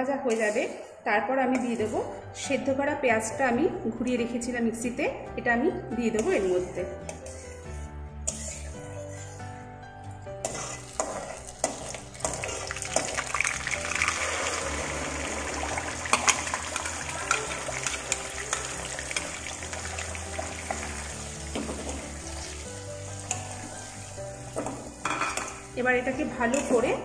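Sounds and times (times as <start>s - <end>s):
metal spatula scraping pan: 0.2s - 2.2s, 6.0s - 9.5s, 10.4s - 13.7s
paste sizzling in oil: 10.4s - 26.5s.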